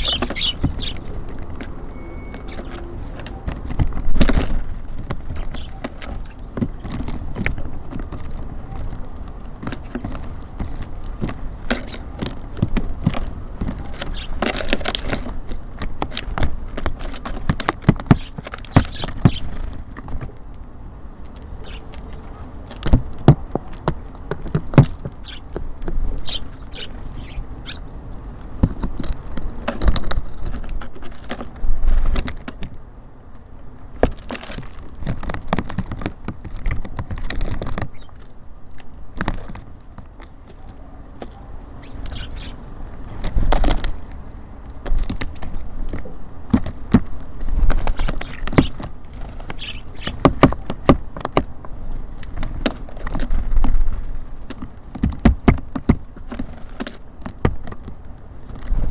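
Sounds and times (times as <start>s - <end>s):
birds pecking at feeder: 0.0s - 58.9s
short high bird chirps: 1.9s - 2.7s.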